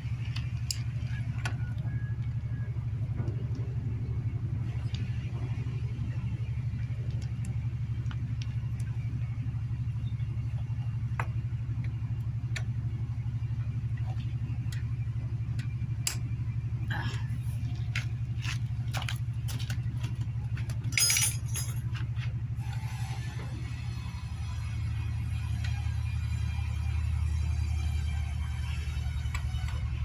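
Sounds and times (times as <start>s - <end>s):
steady low rumble: 0.0s - 30.0s
metal tools clinking and rattling: 20.8s - 22.1s.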